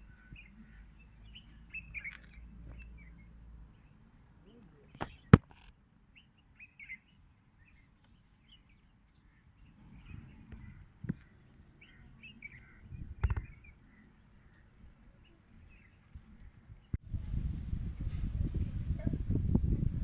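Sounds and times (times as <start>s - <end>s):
faint bird chirps: 6.1s - 17.0s.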